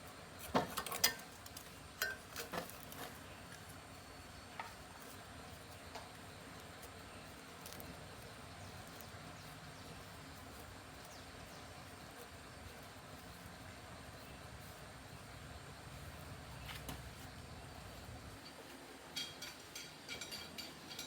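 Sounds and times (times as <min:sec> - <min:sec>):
faint background noise: 0:00.0 - 0:21.0.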